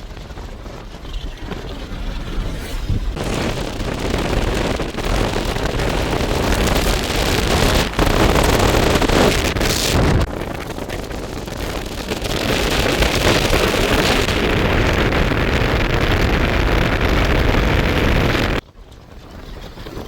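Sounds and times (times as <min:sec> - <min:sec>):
low rumble: 0:00.0 - 0:12.4
wind on microphone: 0:00.0 - 0:20.0.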